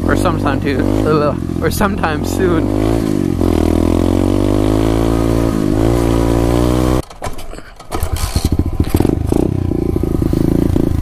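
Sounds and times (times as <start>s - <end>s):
motorbike engine accelerating: 0.0s - 7.0s, 7.9s - 11.0s
choppy pulsing engine: 8.1s - 11.0s.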